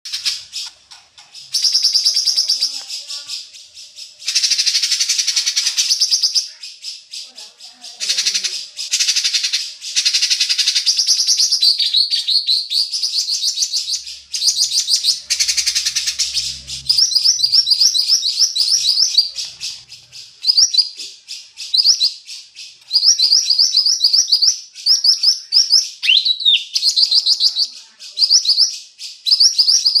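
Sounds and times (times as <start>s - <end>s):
soft bird chattering: 0.1s - 28.8s
songbird rapid rising chirps: 8.3s - 24.4s.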